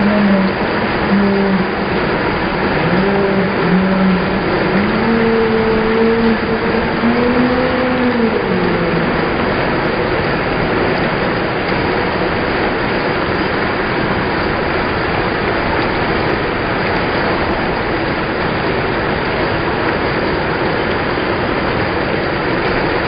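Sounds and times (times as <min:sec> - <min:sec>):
long held tones: 0:00.0 - 0:10.3
heavy rain hissing: 0:00.0 - 0:23.0.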